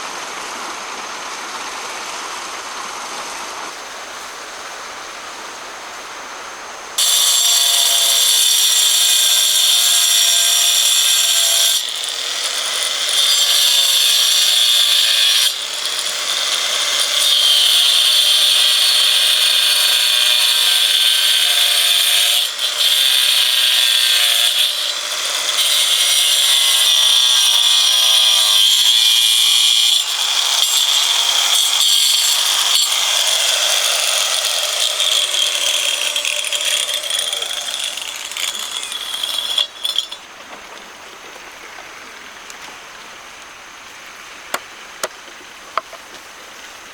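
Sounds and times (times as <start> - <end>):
power tool cutting wood: 7.0 - 40.8.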